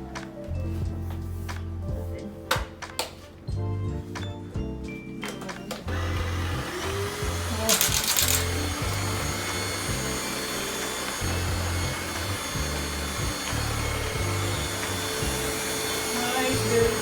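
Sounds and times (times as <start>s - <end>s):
background music with pulsing beat: 0.0s - 5.8s
vacuum cleaner whine: 5.9s - 17.0s.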